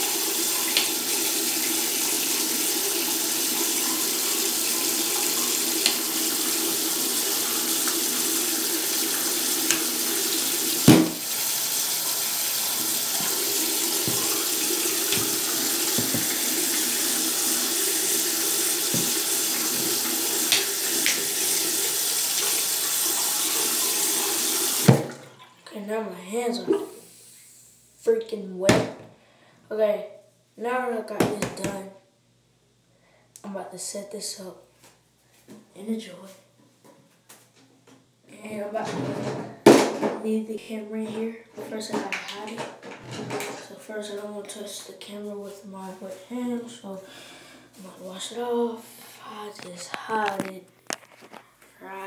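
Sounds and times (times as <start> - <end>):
tap running into a sink: 0.6 - 1.5, 5.8 - 6.4, 9.2 - 11.8, 12.6 - 23.3, 23.9 - 25.2
loud thump: 10.9 - 11.2.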